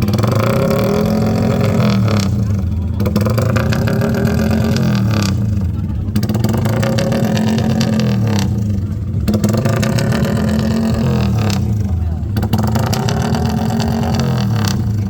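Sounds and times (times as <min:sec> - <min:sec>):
engines revving: 0:00.0 - 0:15.0.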